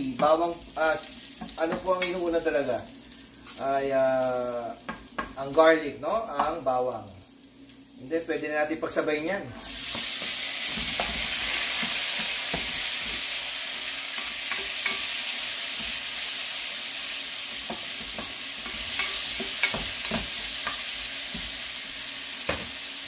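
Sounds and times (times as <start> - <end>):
vegetables sizzling in hot oil: 0.0 - 23.0
spatula scraping and tapping pan: 9.9 - 13.3, 14.1 - 16.0, 17.5 - 21.7.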